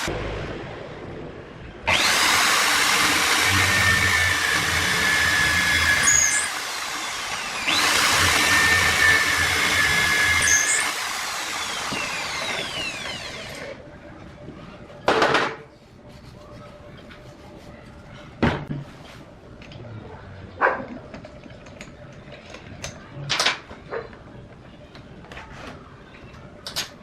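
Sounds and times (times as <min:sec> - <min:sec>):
electric drill motor whining: 0:01.9 - 0:13.8.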